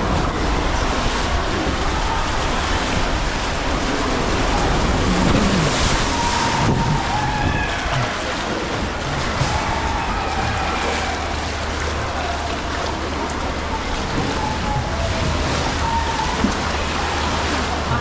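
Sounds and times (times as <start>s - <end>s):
wind buffeting microphone: 0.0s - 10.7s
water rushing down slide: 0.0s - 18.0s.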